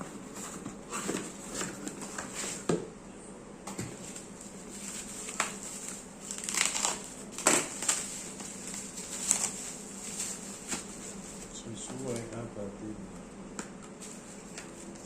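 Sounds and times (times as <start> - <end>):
packaging crinkling and rustling: 4.0 - 11.5
packaging scraping: 4.8 - 11.5.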